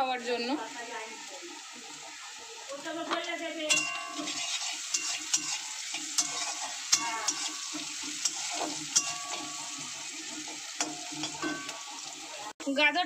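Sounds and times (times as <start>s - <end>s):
carrots sizzling in hot fat: 0.0s - 13.0s
spatula scraping and tapping pan: 3.0s - 12.3s.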